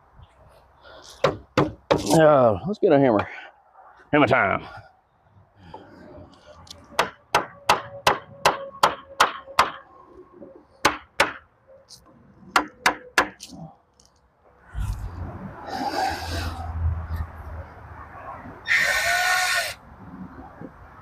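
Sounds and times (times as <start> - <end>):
hammer knocking wooden board: 1.2 - 2.1, 12.5 - 13.4.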